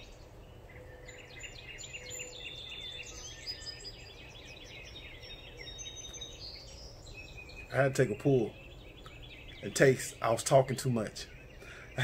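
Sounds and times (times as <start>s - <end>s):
songbirds chirping and whistling: 0.0s - 12.0s
steady low background noise: 0.0s - 12.0s.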